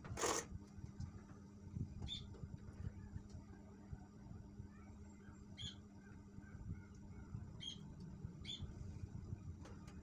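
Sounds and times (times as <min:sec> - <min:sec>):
faint low hum: 0:00.0 - 0:10.0
small bird chirping: 0:02.0 - 0:02.3, 0:04.7 - 0:08.8.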